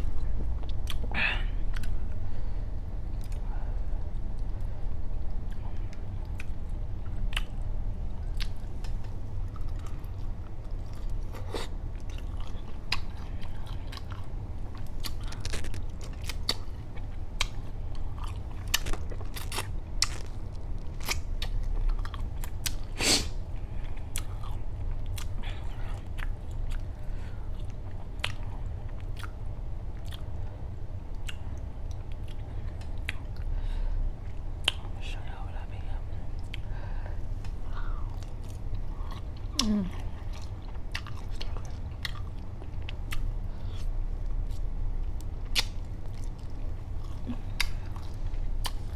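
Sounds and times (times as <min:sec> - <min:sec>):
chewing and biting shrimp: 0:08.3 - 0:23.0, 0:37.4 - 0:48.9
wet clicks and smacks: 0:45.5 - 0:45.8.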